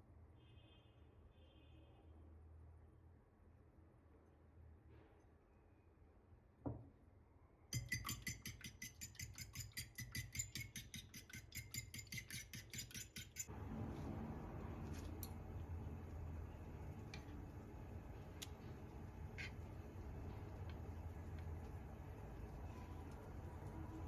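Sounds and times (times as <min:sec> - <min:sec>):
utensil clinking against glass: 0:07.8 - 0:13.5.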